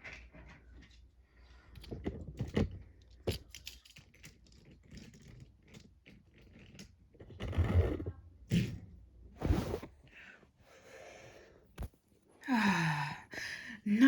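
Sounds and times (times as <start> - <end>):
toy trains clicking and knocking: 1.9 - 7.1.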